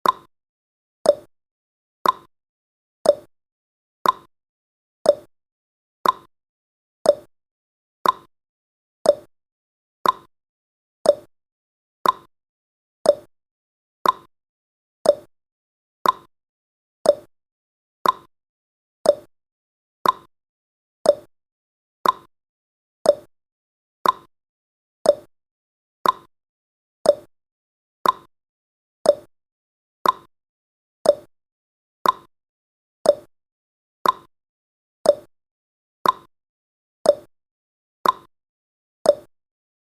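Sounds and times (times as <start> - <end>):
timer ticking clicks: 0.0 - 0.3, 1.0 - 1.3, 2.0 - 2.3, 3.0 - 3.3, 4.0 - 4.3, 5.0 - 5.3, 6.0 - 6.3, 7.0 - 7.3, 8.0 - 8.3, 9.0 - 9.3, 10.0 - 10.3, 11.0 - 11.3, 12.0 - 12.3, 13.0 - 13.3, 14.0 - 14.3, 15.0 - 15.3, 16.0 - 16.3, 17.0 - 17.3, 18.0 - 18.3, 19.0 - 19.3, 20.0 - 20.3, 21.0 - 21.3, 22.0 - 22.3, 23.0 - 23.3, 24.0 - 24.3, 25.0 - 25.3, 26.0 - 26.3, 27.0 - 27.3, 28.0 - 28.3, 29.0 - 29.3, 30.0 - 30.3, 31.0 - 31.3, 32.0 - 32.3, 33.0 - 33.3, 34.0 - 34.3, 35.0 - 35.3, 36.0 - 36.3, 37.0 - 37.3, 38.0 - 38.3, 39.0 - 39.3.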